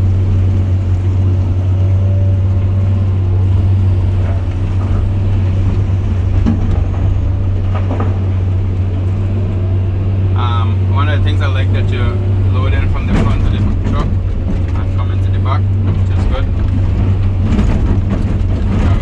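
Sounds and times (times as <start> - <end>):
diesel engine low drone: 0.0 - 19.0
faint knocks: 2.4 - 10.2.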